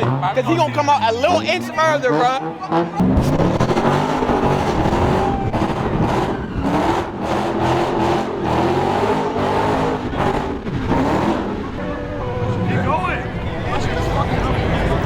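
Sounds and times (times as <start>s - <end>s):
car engine revving hard: 0.0s - 11.8s.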